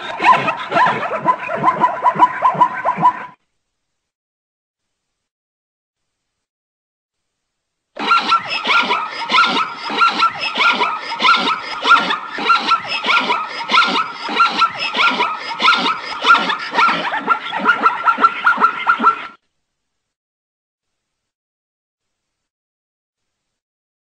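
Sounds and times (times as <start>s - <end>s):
zebra barking: 0.0s - 3.2s, 8.0s - 19.4s.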